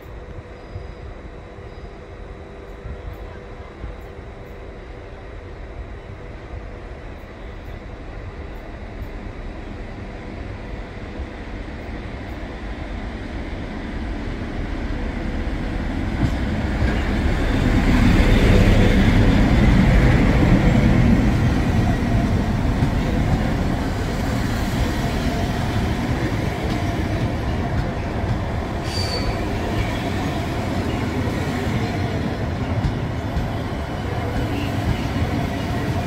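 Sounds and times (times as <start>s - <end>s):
train rumbling on tracks: 0.0s - 36.0s
high wheel squeal: 28.8s - 29.6s.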